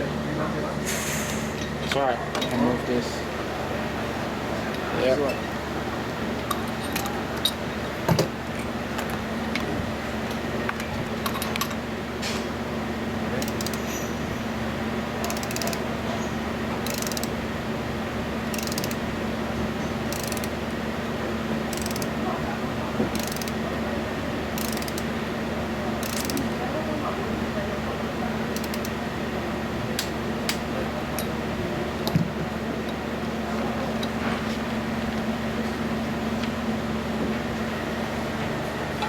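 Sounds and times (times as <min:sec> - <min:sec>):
workshop hum: 0:00.0 - 0:39.0
metal clicks: 0:13.4 - 0:14.0, 0:15.2 - 0:15.8, 0:16.8 - 0:17.3, 0:18.4 - 0:19.0, 0:20.1 - 0:20.6, 0:21.7 - 0:22.2, 0:23.1 - 0:23.6, 0:24.6 - 0:25.1, 0:26.0 - 0:26.5, 0:28.6 - 0:29.0.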